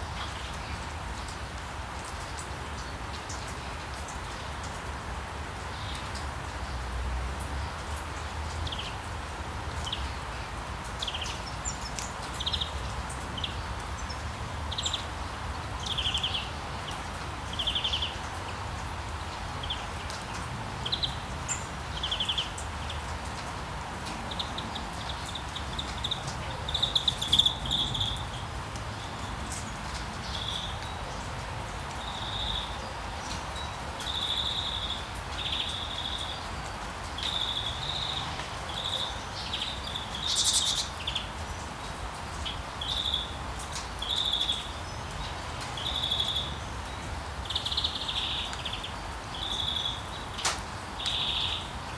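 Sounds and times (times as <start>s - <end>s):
rain hissing: 0.0s - 51.9s
small birds trilled chirps: 24.3s - 29.4s, 37.2s - 41.4s, 42.3s - 46.8s, 47.4s - 50.4s, 51.0s - 51.7s.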